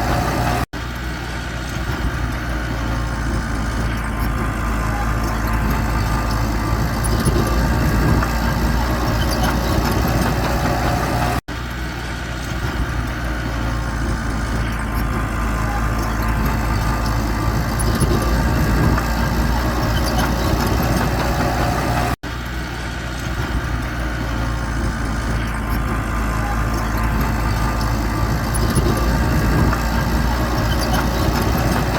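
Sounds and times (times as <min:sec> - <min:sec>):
heavy machinery engine running: 0:00.0 - 0:31.9.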